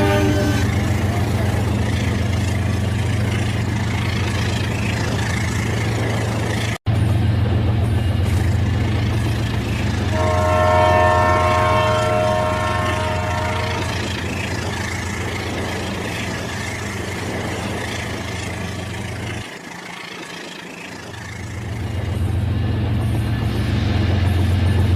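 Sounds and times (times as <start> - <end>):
electronic horn-like chord: 0.0 - 0.8, 10.1 - 13.9.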